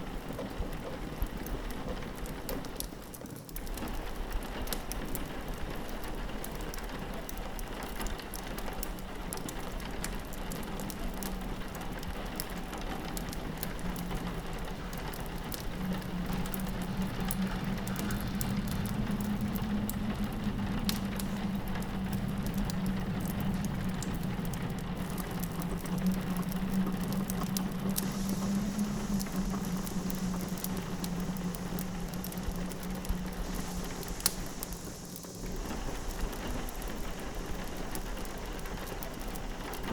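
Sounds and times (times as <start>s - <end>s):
rain pattering on window glass: 0.0s - 39.9s
wood fire crackling: 0.1s - 39.9s
wind howling: 13.4s - 39.7s.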